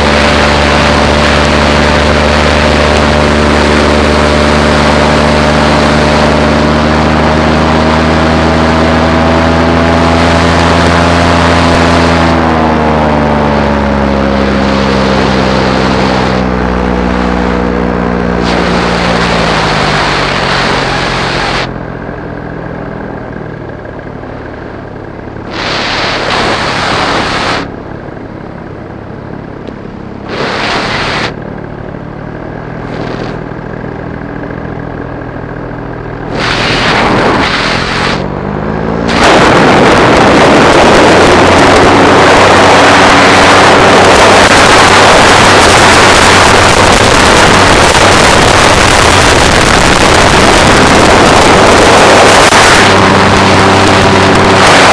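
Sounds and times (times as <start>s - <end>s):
paramotor engine and propeller: 0.0s - 54.9s
rushing air noise: 18.1s - 21.7s, 25.4s - 27.8s, 30.2s - 31.4s, 36.2s - 54.9s.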